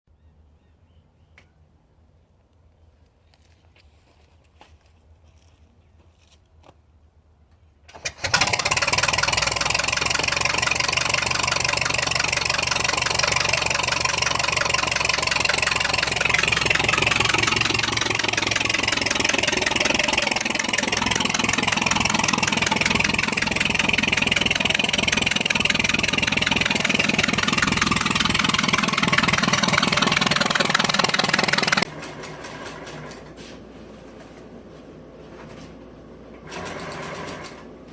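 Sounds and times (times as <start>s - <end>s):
old car engine running fast: 7.9s - 33.2s.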